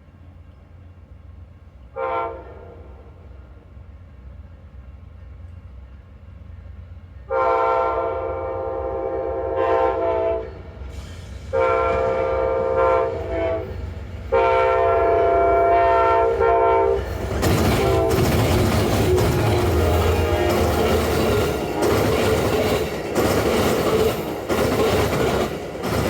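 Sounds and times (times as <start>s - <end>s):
train passing with rail noise: 0.0s - 26.0s
train air horn blasts: 1.9s - 3.2s, 7.3s - 10.8s, 11.5s - 23.0s.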